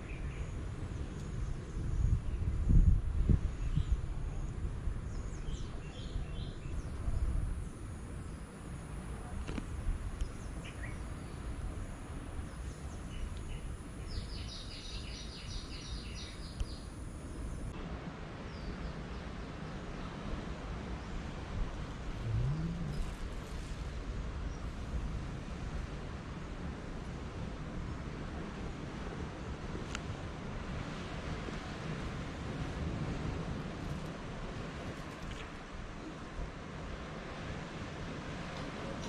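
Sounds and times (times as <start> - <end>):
low background rumble: 1.9 - 26.8
small birds chirping: 12.4 - 17.6.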